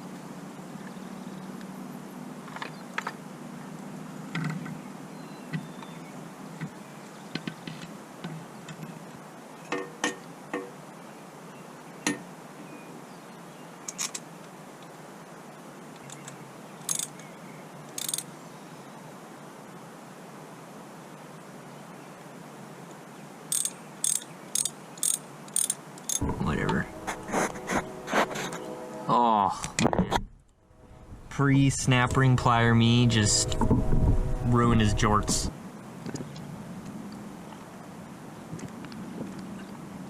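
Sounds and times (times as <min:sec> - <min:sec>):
metallic clicks of hand tools: 0:18.0 - 0:18.2, 0:23.5 - 0:26.2
low steady hum: 0:26.2 - 0:35.8.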